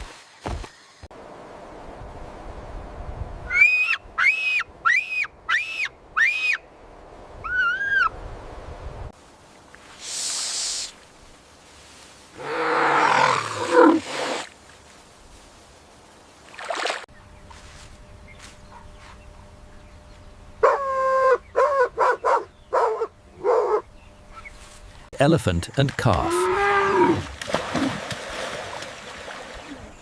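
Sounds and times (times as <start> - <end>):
animal high calls: 7.4 - 8.1
animal hissing: 9.9 - 11.0, 12.4 - 14.5
animal growling call: 12.4 - 14.4, 26.2 - 27.3.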